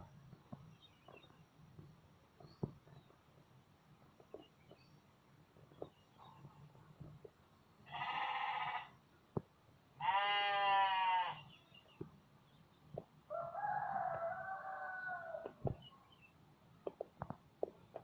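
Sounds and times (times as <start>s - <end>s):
bleat-like animal calls: 7.9s - 9.0s, 10.0s - 11.5s.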